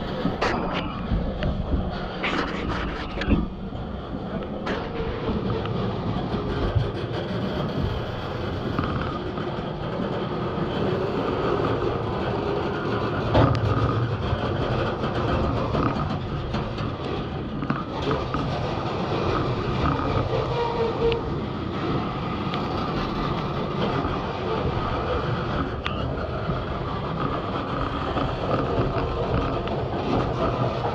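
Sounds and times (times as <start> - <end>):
steady train rumble: 0.0 - 30.9
train wheels clicking over rail joints: 3.2 - 30.9
faint squealing tones: 19.8 - 21.4.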